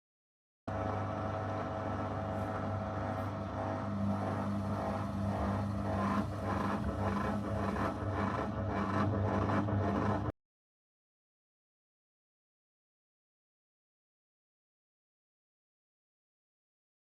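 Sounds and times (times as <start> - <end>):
washing machine motor hum: 0.7 - 10.3.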